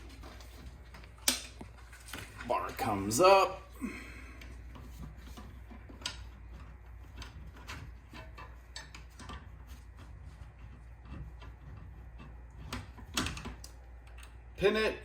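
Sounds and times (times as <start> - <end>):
metal parts clicking and tapping: 0.9 - 1.9, 4.4 - 10.0.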